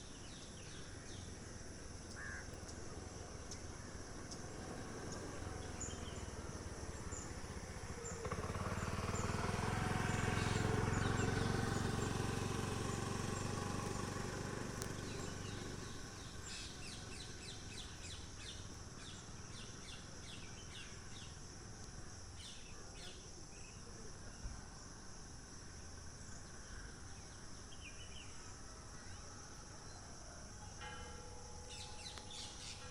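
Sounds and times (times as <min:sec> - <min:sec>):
small birds chirping: 0:00.0 - 0:24.6, 0:31.6 - 0:32.9.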